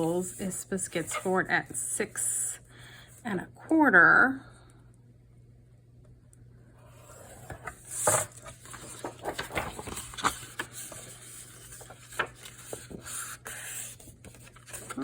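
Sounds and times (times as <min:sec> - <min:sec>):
paper scraping and rustling: 0:00.0 - 0:01.5, 0:06.9 - 0:15.0.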